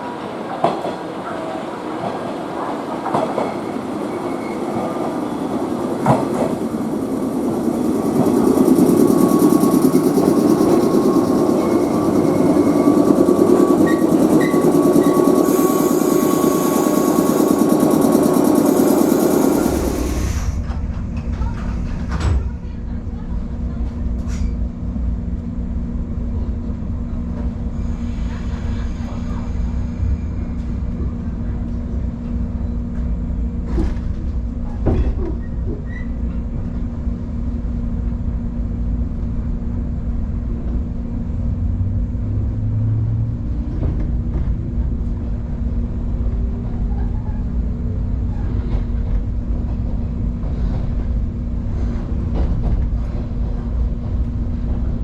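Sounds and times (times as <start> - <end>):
train low rumble and hum: 0.0 - 55.0
traction motor whine: 6.4 - 20.5.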